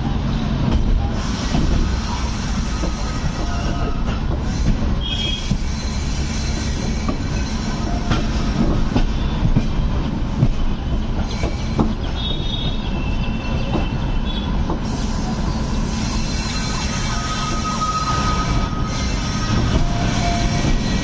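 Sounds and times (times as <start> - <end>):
train rumbling on rails: 0.0 - 21.0
high wheel squeal: 1.0 - 9.4, 11.2 - 21.0.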